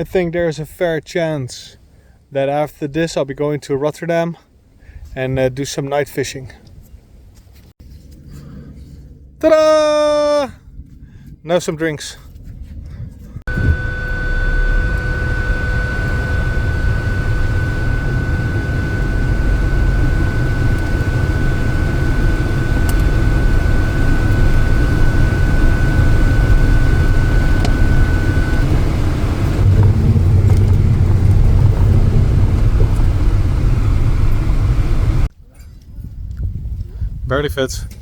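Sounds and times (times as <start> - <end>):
road and engine rumble: 13.1 - 35.4
thin high whine: 13.5 - 35.3.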